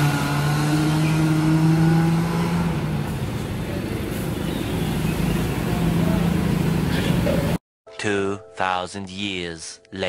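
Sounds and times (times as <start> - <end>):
car engine accelerating: 0.0 - 7.6.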